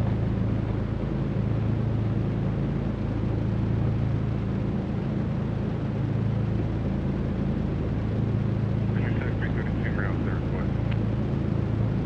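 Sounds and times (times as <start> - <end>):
twin piston engines droning: 7.3 - 12.0.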